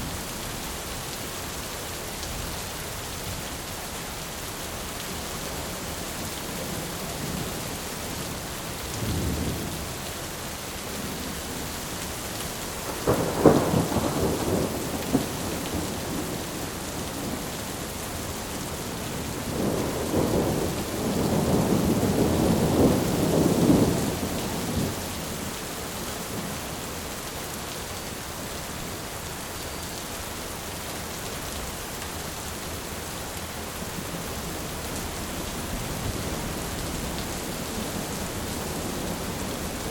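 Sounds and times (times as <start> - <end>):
steady rain hiss: 0.0 - 39.9
rolling thunder: 12.9 - 16.6, 19.4 - 25.0.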